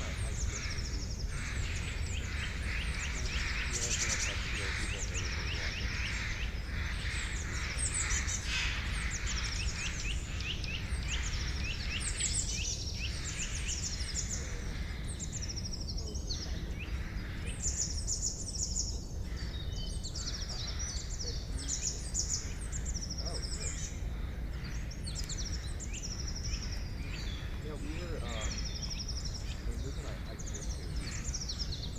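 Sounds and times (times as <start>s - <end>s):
birds chirping and trilling: 0.0s - 31.9s.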